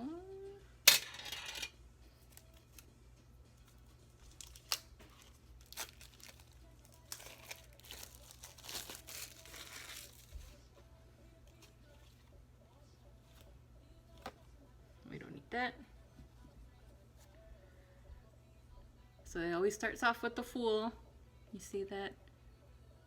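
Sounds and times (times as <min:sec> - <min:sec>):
packaging crinkling and rustling: 0:03.6 - 0:10.6
packaging ripping: 0:04.2 - 0:10.4.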